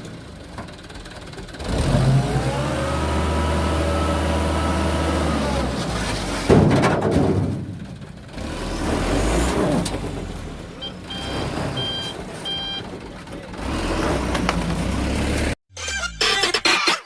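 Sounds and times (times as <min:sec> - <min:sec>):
truck engine running: 0:00.0 - 0:06.6
reversing alarm beeps: 0:10.8 - 0:12.8.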